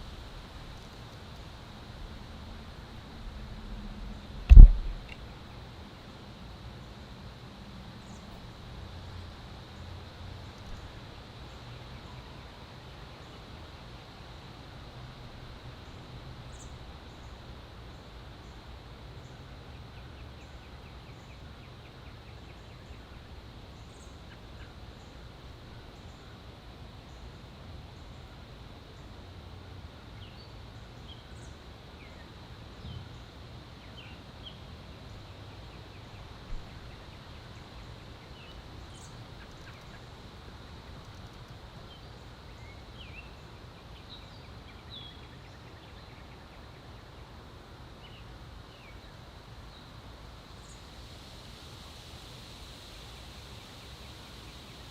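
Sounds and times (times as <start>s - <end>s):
faint high whine: 1.4s - 8.6s
low background rumble: 2.1s - 5.3s
sharp click: 4.5s - 5.2s
songbirds chirping: 15.4s - 51.8s.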